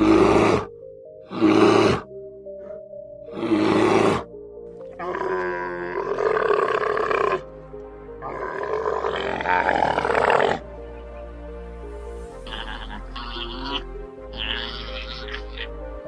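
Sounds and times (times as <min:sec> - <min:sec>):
background music: 0:00.0 - 0:16.0
long loud animal calls: 0:08.2 - 0:10.6, 0:12.4 - 0:15.8.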